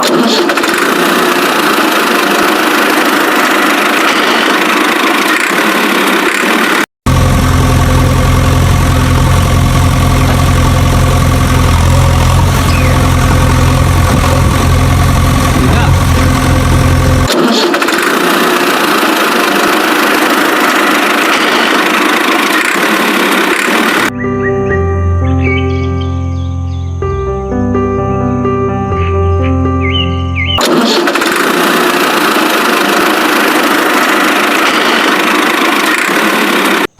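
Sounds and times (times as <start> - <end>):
engine idling: 0.0 - 24.1, 30.5 - 36.9
music: 24.1 - 30.6.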